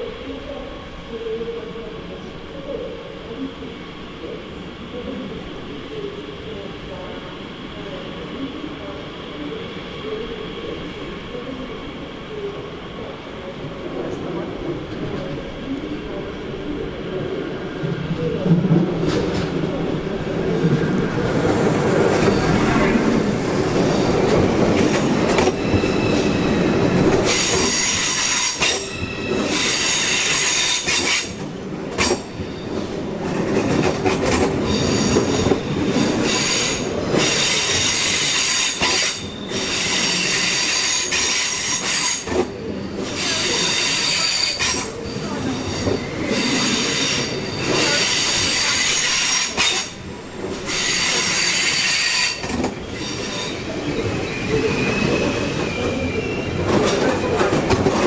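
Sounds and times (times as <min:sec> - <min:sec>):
train wheels rumbling: 0:06.0 - 0:58.0
high-pitched metallic squeal: 0:25.5 - 0:31.4, 0:50.7 - 0:56.6.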